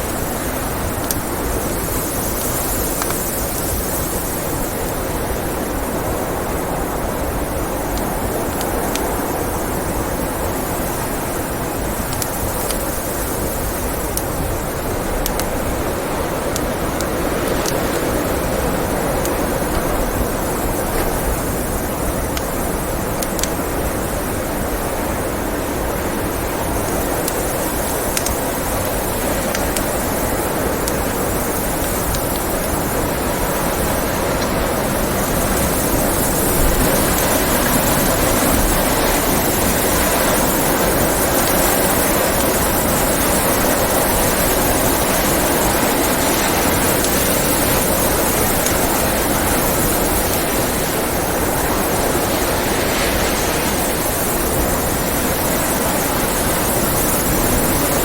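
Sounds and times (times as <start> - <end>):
blizzard wind blowing: 0.0 - 58.0
wood fire crackling: 26.3 - 54.9.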